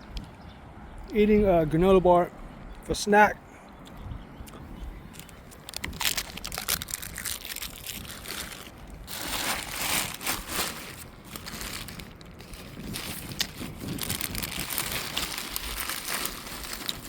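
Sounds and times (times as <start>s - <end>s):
plastic wrapper crinkling: 5.2s - 17.0s.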